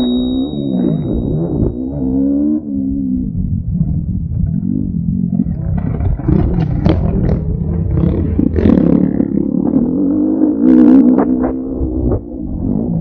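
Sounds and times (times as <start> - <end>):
motocross bike engine revving: 5.7 - 12.8.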